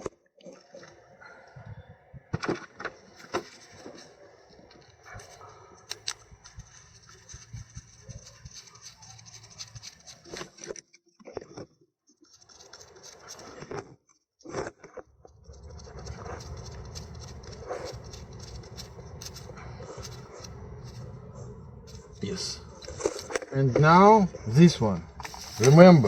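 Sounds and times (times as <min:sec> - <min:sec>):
small parts clicking and tapping: 0:05.2 - 0:10.8.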